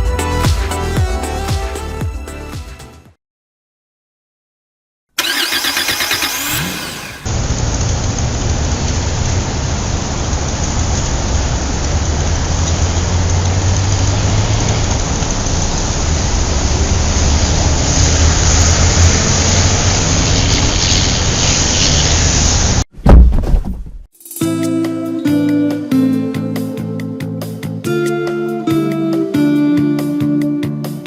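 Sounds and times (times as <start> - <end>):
car engine starting and running: 5.2 - 22.8.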